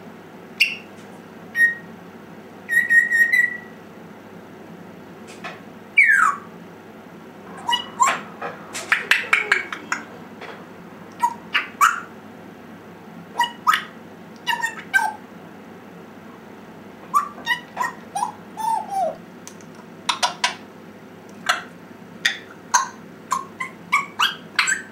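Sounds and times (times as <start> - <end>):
parrot squeaky calls and clicks: 0.6 - 0.9, 6.0 - 6.4, 7.6 - 8.2, 11.1 - 12.1, 13.4 - 15.2, 17.1 - 20.6, 21.3 - 24.9.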